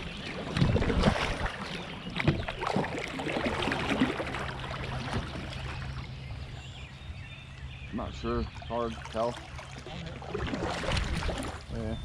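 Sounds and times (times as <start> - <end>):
kayak splashing and knocking: 0.0 - 6.2, 8.5 - 11.9
rushing water: 0.0 - 6.6, 8.0 - 12.0.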